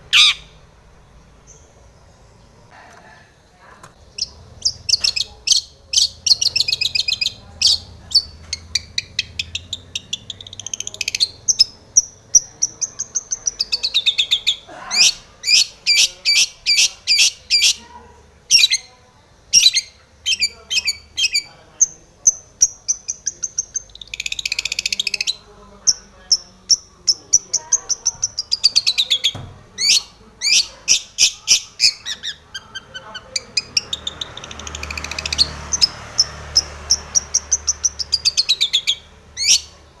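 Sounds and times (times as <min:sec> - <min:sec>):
harsh rasping bird call: 0:00.0 - 0:00.6, 0:13.6 - 0:17.8
shrike singing: 0:00.0 - 0:02.8, 0:04.0 - 0:17.9, 0:18.5 - 0:40.0.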